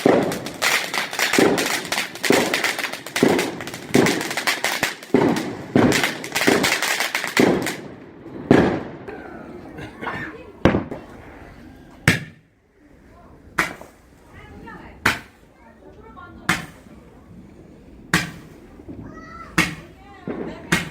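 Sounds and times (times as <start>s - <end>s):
fireworks crackling: 0.0s - 9.1s, 10.3s - 20.9s
fireworks bangs: 0.0s - 9.2s, 10.2s - 12.5s, 16.3s - 20.9s.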